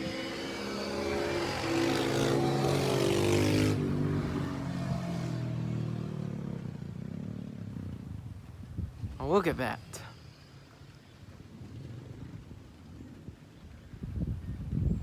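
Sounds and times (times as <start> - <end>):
dirt bikes riding past: 0.0 - 8.6.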